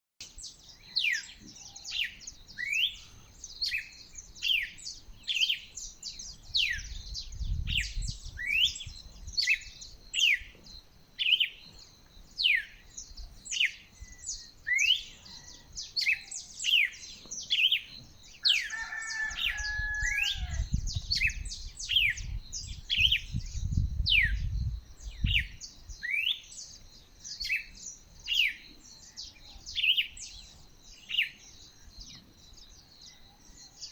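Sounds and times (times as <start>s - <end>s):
lower falling bird call: 0.2s - 23.2s.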